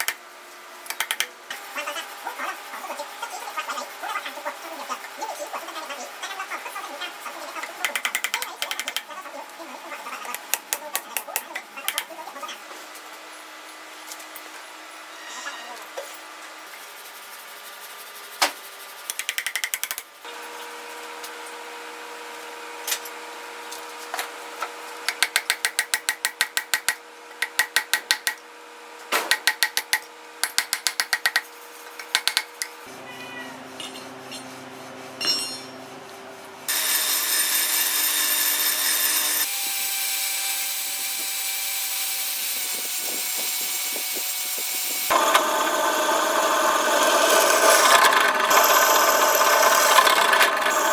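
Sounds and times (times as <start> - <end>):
power tool running with hiss: 36.7 - 50.9.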